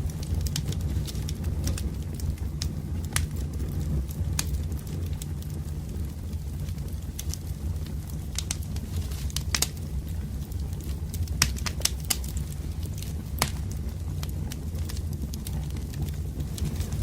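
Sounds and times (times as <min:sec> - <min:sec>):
firewood crackling: 0:00.0 - 0:17.0
low rumble of fire: 0:00.0 - 0:17.0
sharp pops and snaps: 0:00.1 - 0:03.7, 0:07.2 - 0:09.8, 0:10.8 - 0:17.0.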